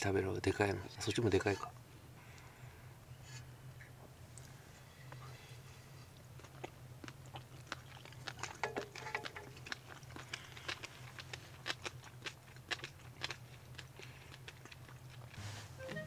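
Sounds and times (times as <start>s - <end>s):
people chewing: 4.3s - 16.0s.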